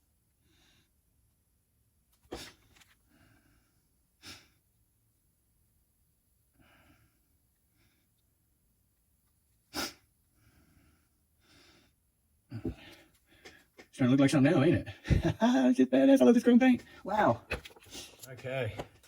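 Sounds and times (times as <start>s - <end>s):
person breathing quietly: 10.4s - 13.8s.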